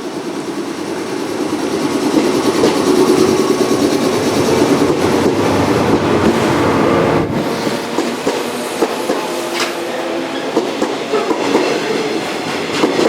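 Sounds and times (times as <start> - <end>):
wheel clatter over rail joints: 0.0 - 9.9, 10.5 - 13.0
electric train running: 0.0 - 13.0.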